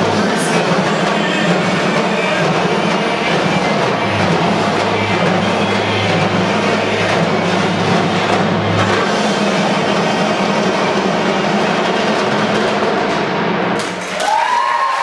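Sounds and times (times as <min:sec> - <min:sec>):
drumline playing: 0:00.0 - 0:14.8
crowd cheering: 0:13.6 - 0:15.0.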